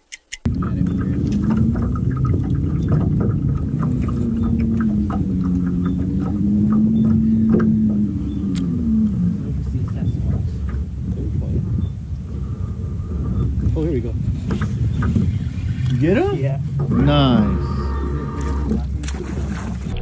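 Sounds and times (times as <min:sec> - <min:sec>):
light clicks: 0:00.0 - 0:00.5
electric trolling motor humming: 0:00.0 - 0:20.0.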